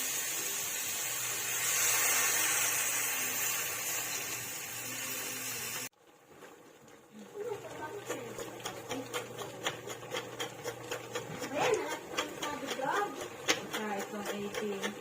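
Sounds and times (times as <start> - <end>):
hiss of crabs cooking in pot: 0.0 - 7.6.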